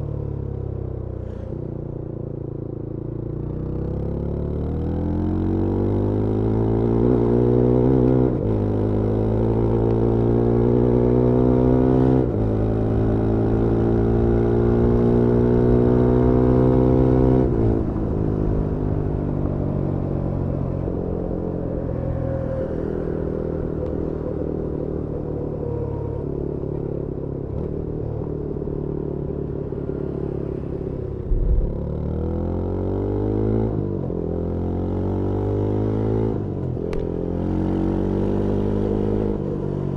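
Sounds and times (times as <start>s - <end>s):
motorcycle engine accelerating: 3.4s - 39.9s
short thump: 31.3s - 31.9s.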